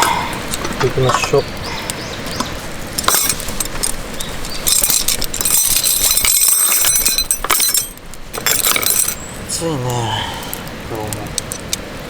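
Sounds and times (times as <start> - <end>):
metal cookware clinking and scraping: 4.6 - 9.2.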